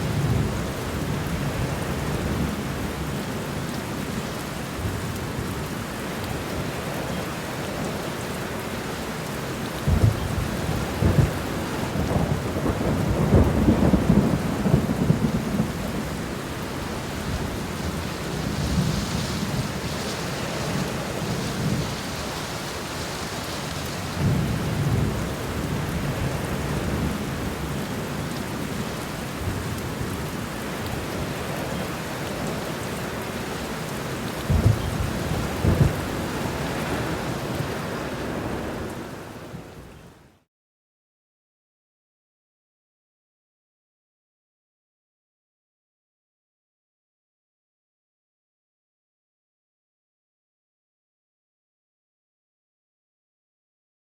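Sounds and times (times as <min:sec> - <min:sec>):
steady rain: 0:00.0 - 0:40.5
thunder rumbling: 0:09.9 - 0:23.4, 0:34.4 - 0:37.6.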